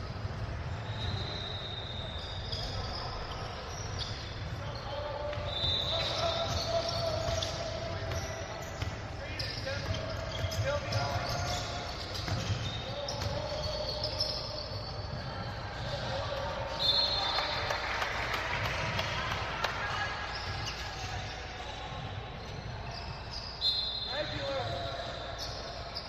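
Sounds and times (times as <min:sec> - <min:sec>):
crowd and player voices: 0:00.0 - 0:26.0
shoe squeaks: 0:00.7 - 0:17.6, 0:19.9 - 0:26.0
basketball bouncing on court: 0:05.2 - 0:17.1.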